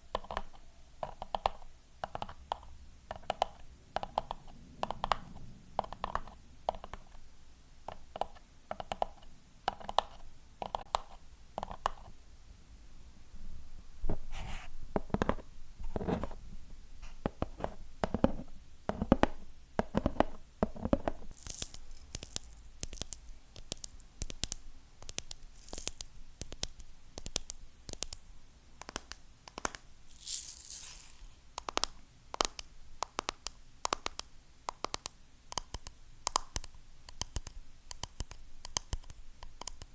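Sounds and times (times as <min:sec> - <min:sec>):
scratchy rustle: 0:14.1 - 0:16.4, 0:30.1 - 0:31.4
fingernails tapping on hard objects: 0:17.2 - 0:21.2.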